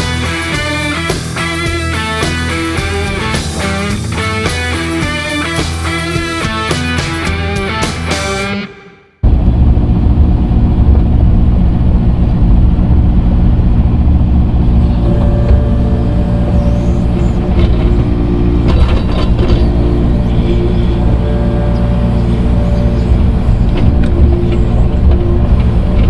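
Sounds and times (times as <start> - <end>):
earthmoving machine engine running: 0.0 - 8.2, 9.2 - 26.0
metallic clanks: 15.0 - 26.0.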